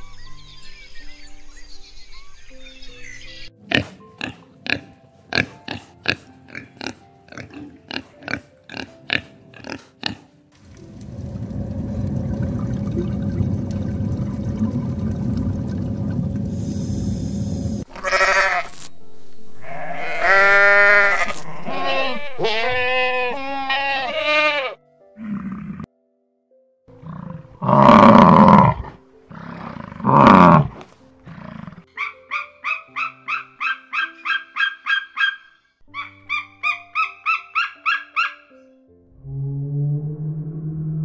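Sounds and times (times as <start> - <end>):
low rumbling noise: 10.6 - 17.9, 39.1 - 41.0
goat bleating: 17.9 - 18.7, 19.6 - 24.8.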